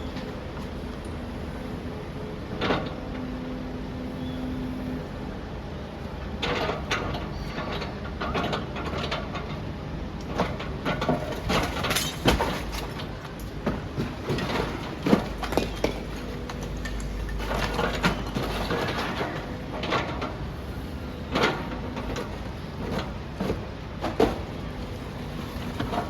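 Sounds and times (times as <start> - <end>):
masonry cracking and crunching: 10.5 - 20.5
falling debris: 11.3 - 19.4.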